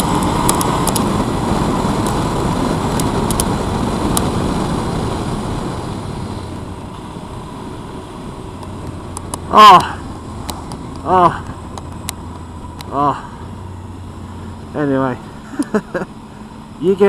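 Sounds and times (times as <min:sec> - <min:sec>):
sharp ticks: 0:00.0 - 0:01.1, 0:02.9 - 0:04.3, 0:08.6 - 0:09.5, 0:10.4 - 0:13.0
motorcycle engine and wind rush: 0:00.0 - 0:17.0.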